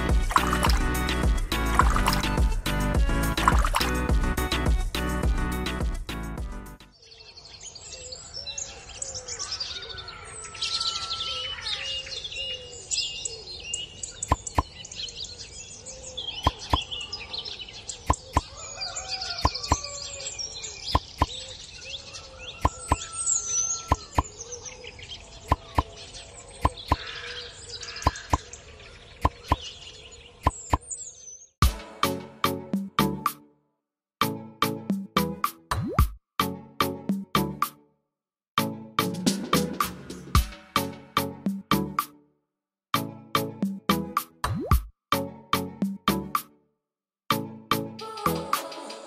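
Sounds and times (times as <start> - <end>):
birds chirping: 0.0 - 2.8, 6.8 - 31.6.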